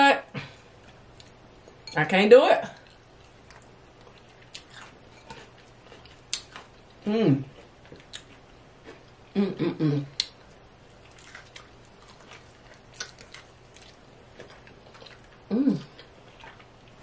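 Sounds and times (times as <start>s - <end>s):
chewing crispy chicken: 2.7s - 9.2s, 10.1s - 17.0s.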